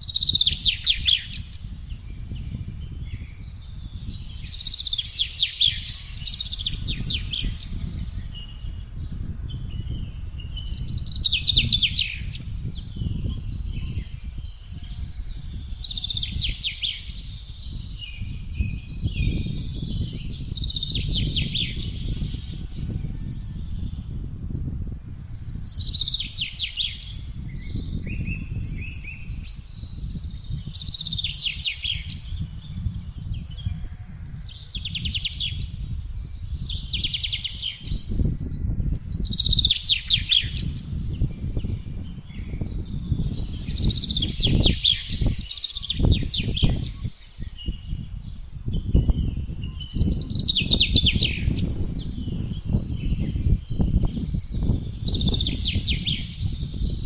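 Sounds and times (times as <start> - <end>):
songbird trilling: 0.0 - 8.9, 9.6 - 24.1, 25.5 - 35.8, 36.5 - 57.0
gusting wind rumble: 0.0 - 57.0.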